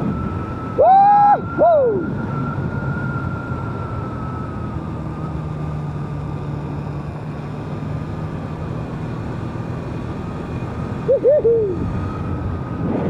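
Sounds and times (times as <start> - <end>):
wind rushing over microphone: 0.0 - 6.2, 9.3 - 13.0
motorcycle engine cruising: 0.0 - 13.0.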